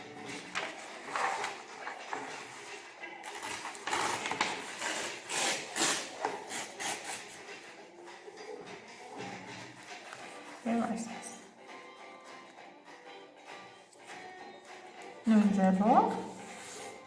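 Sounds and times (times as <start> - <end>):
paper folding and creasing: 0.2 - 7.7.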